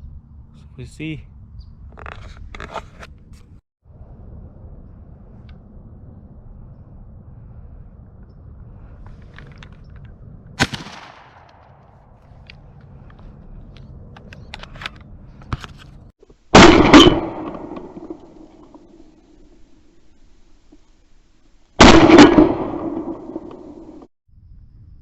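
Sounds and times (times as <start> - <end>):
shotgun shots: 10.6 - 12.2, 16.6 - 18.5, 21.8 - 24.0.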